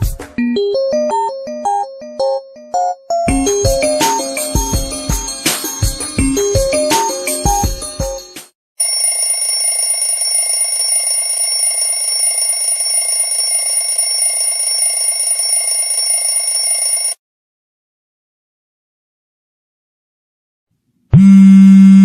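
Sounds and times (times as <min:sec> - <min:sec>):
melodic phone ringtone: 0:00.4 - 0:17.2.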